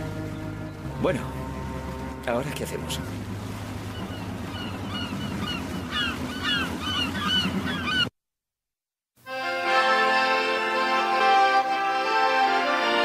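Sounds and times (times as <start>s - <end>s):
music: 0.0s - 3.0s, 9.2s - 13.0s
birds calling: 0.0s - 8.1s.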